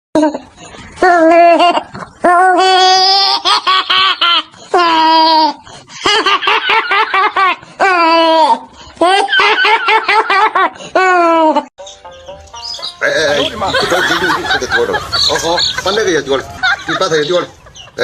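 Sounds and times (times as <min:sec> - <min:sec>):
laugh-like repeated notes: 0:11.8 - 0:18.0.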